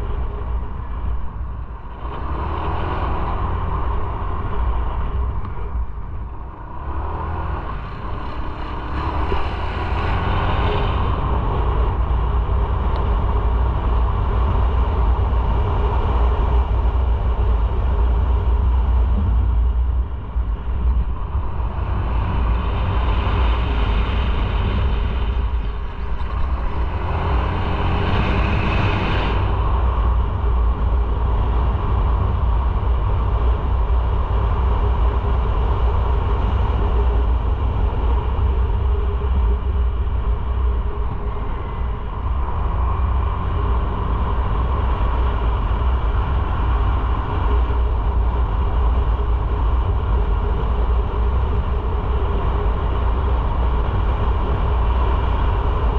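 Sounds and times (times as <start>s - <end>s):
wind on microphone: 0.0s - 55.9s.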